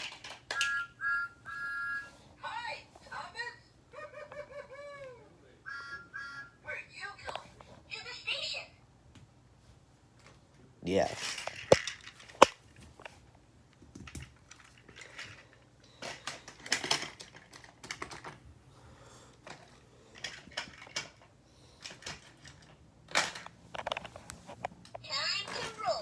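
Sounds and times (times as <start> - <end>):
plastic toy trains rattling: 0.0 - 0.8, 11.0 - 12.6, 14.0 - 18.4, 19.5 - 24.1.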